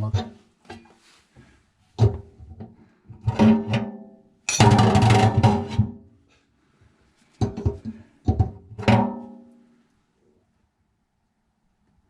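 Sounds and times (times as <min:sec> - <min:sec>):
percussion: 0:04.5 - 0:05.0.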